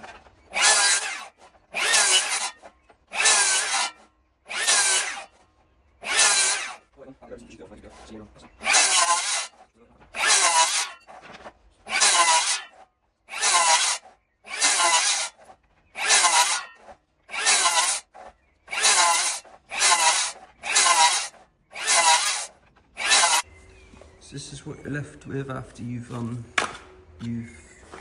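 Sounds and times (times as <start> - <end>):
handsaw cutting timber: 0.0 - 5.4, 6.0 - 6.9, 8.6 - 11.2, 11.8 - 23.5.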